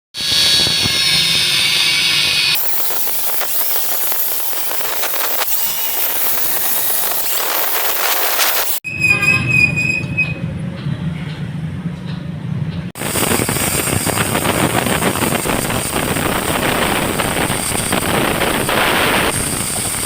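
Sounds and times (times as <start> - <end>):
steel ringing: 2.6 - 9.8, 13.0 - 20.0
harsh metal grinding: 2.6 - 10.4, 13.0 - 20.0.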